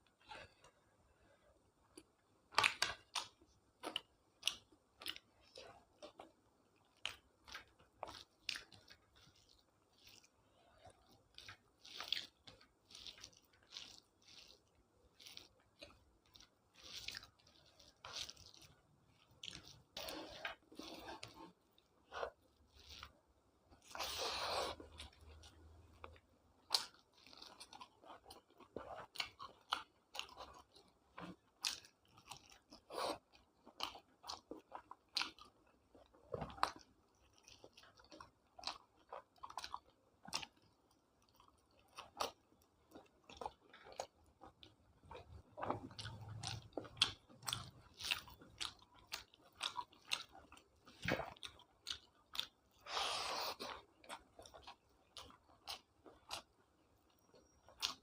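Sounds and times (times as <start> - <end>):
person chewing food: 1.8 - 58.0.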